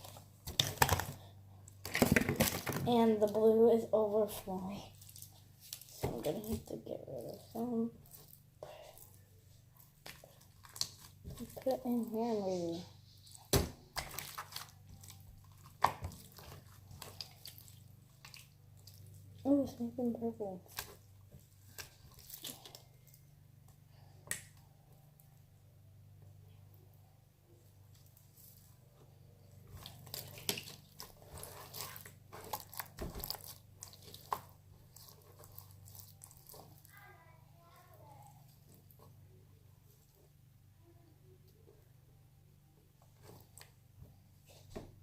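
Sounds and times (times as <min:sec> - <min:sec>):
slime squishing and crackling: 0:00.0 - 0:03.7, 0:04.3 - 0:23.2, 0:29.6 - 0:37.1
slime squished by hand: 0:13.3 - 0:19.4, 0:29.7 - 0:37.0.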